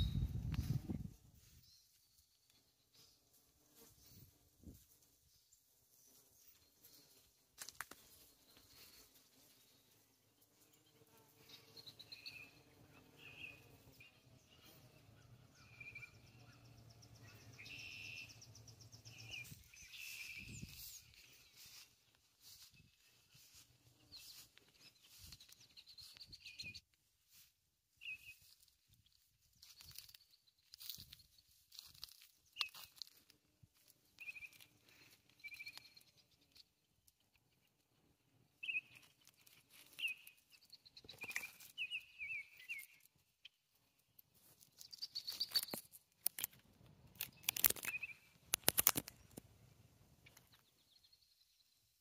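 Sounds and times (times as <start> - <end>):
small birds chirping: 0.0 - 52.0
crackling and rustling: 28.4 - 37.5, 44.0 - 49.6.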